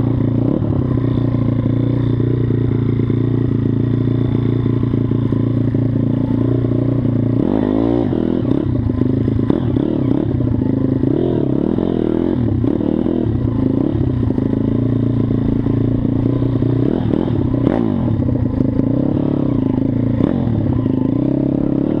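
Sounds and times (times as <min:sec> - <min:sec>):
motorbike engine revving: 0:00.0 - 0:22.0.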